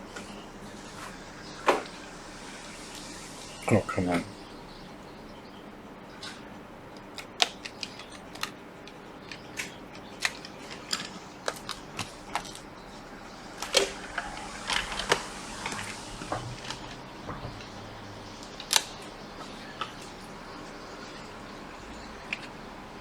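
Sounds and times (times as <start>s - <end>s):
faint hiss: 0.0s - 5.3s, 13.0s - 23.0s.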